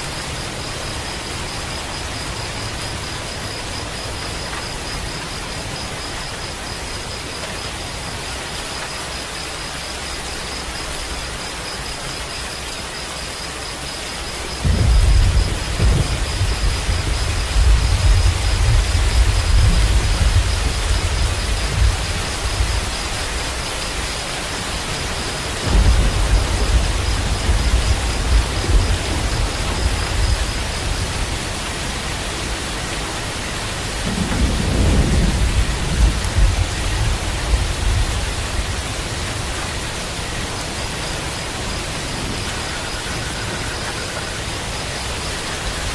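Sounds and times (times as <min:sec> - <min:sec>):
heavy rainfall: 0:00.0 - 0:45.9
rolling thunder: 0:14.6 - 0:23.6, 0:25.0 - 0:32.9, 0:33.7 - 0:40.2.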